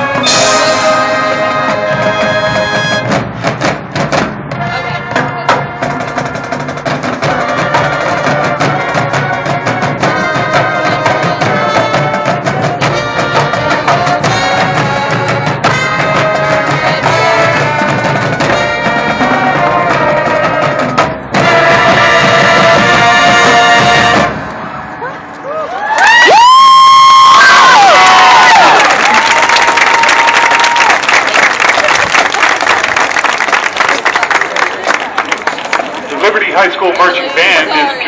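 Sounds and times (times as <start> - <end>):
brass and woodwinds: 0.0 - 3.3, 4.5 - 32.3
fast drumline hits: 0.0 - 24.4
marching band playing: 0.0 - 25.3, 26.3 - 38.0.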